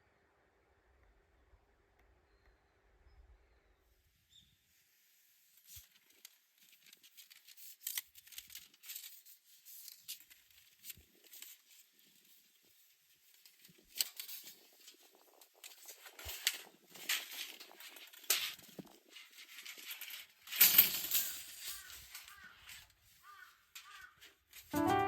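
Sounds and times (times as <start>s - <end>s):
metal parts clinking and scraping: 5.7s - 12.3s, 15.6s - 22.8s.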